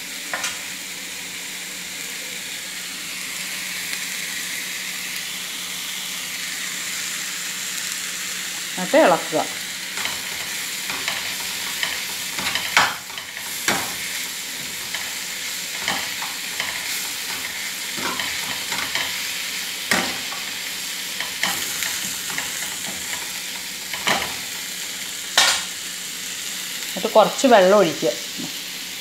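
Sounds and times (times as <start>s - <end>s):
chicken and onion sizzling in pan: 0.0s - 29.0s.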